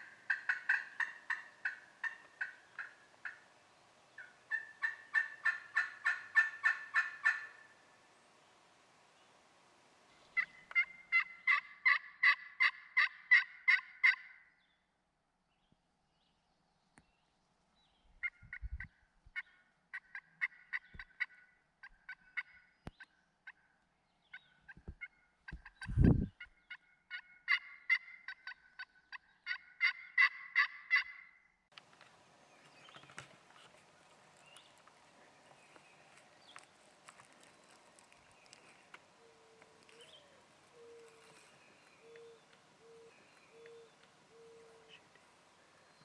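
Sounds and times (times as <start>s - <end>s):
turkey calling: 0.0s - 3.5s, 4.2s - 7.8s, 10.2s - 14.4s, 18.2s - 23.7s, 24.3s - 31.3s, 36.4s - 45.2s
faint background hiss: 0.0s - 11.9s, 31.7s - 46.0s.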